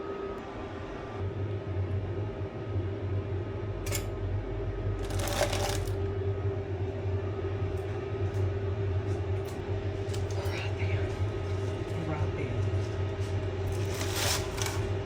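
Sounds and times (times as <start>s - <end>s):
steady low hum: 0.0s - 15.0s
kitchen utensils clattering: 13.7s - 14.9s.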